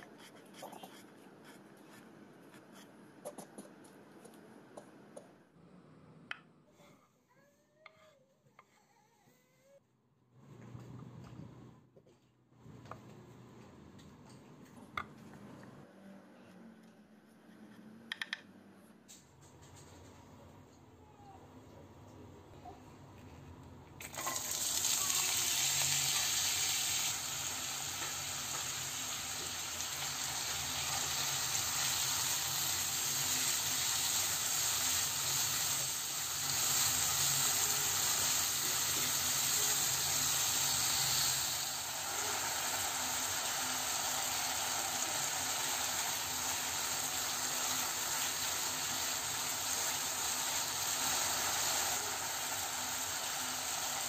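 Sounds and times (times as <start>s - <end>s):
potatoes sizzling in hot oil: 24.0s - 54.0s.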